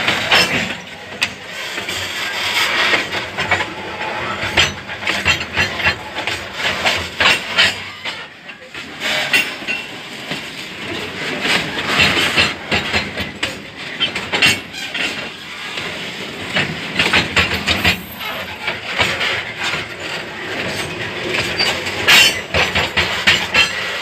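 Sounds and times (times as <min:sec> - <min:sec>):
model train wheels clicking: 0:00.0 - 0:24.0.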